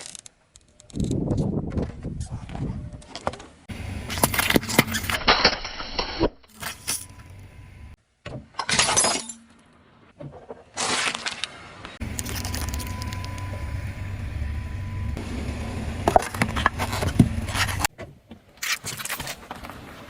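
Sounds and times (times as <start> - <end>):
items crunching under car tyre: 10.6 - 13.6, 16.0 - 20.0.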